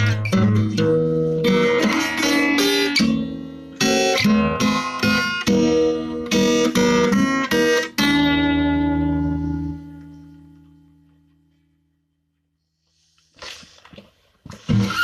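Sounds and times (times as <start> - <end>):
guitar chords: 0.0 - 12.0.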